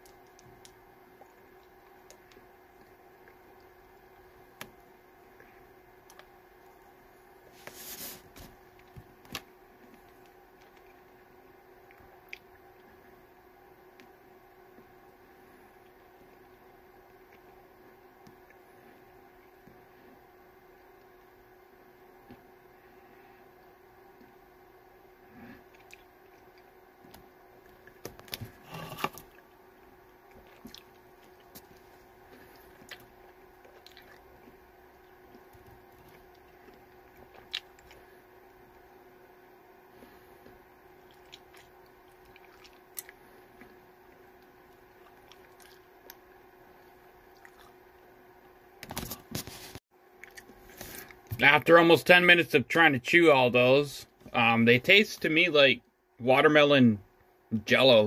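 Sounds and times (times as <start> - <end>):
person chewing chewy candy: 0.0 - 7.0, 11.8 - 13.2, 25.6 - 38.9, 40.0 - 48.0, 50.2 - 51.3
faint steady hum: 0.0 - 58.0
chewing hard candy: 30.2 - 38.2, 40.9 - 46.2, 47.3 - 47.8.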